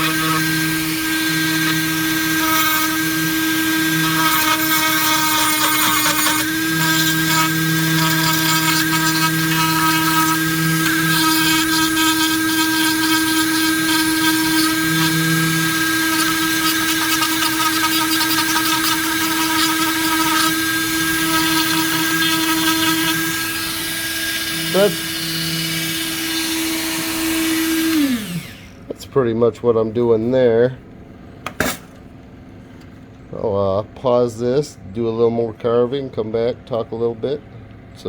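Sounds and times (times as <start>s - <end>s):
bit grinding into wood: 0.0s - 28.7s
rotary tool whining: 0.0s - 28.8s.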